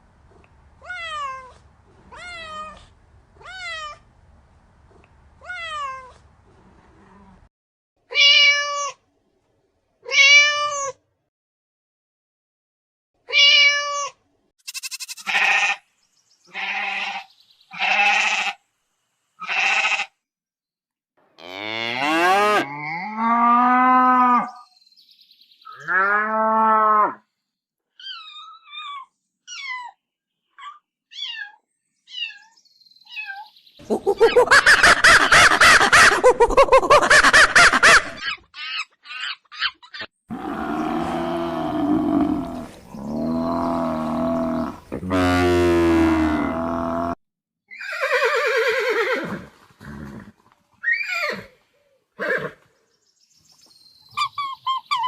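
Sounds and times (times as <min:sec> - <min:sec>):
short repeated animal calls: 0:14.6 - 0:15.8
livestock lowing and bleating: 0:14.7 - 0:15.8, 0:16.5 - 0:18.6, 0:19.4 - 0:20.1, 0:21.4 - 0:24.6, 0:25.7 - 0:27.2, 0:40.3 - 0:47.2
small bird chirps: 0:28.0 - 0:33.8, 0:53.0 - 0:55.0
low animal calls: 0:33.8 - 0:34.9, 0:40.3 - 0:47.2.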